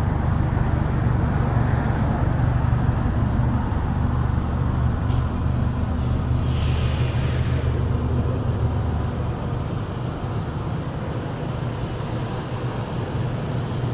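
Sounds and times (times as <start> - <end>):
vehicle engine droning: 0.0 - 13.9
brief hiss: 6.4 - 7.8.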